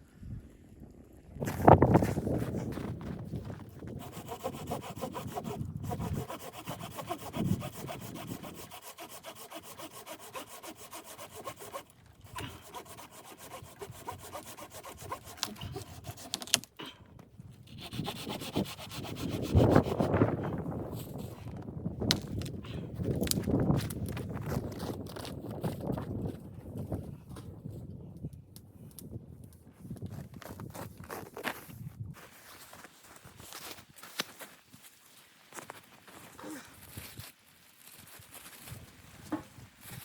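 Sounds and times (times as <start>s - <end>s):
hand saw cutting wood: 3.8s - 16.7s, 17.7s - 20.2s.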